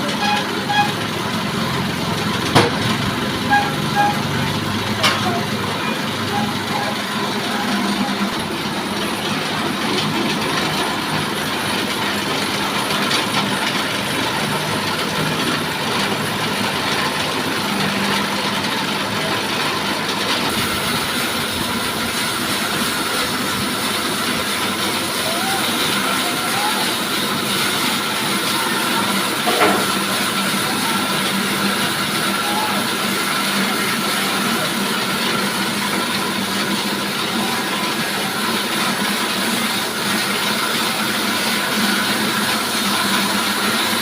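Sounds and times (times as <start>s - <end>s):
sawmill machinery running: 0.0s - 44.0s.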